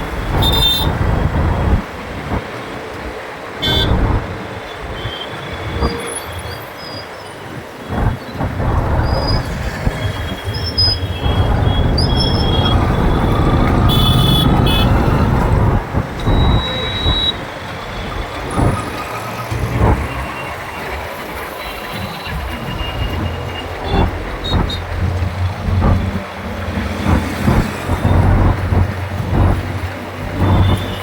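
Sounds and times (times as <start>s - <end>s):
wind and road rumble: 0.0s - 31.0s
vehicle horns honking: 0.3s - 1.0s, 3.6s - 4.0s, 10.5s - 17.4s, 30.4s - 31.0s.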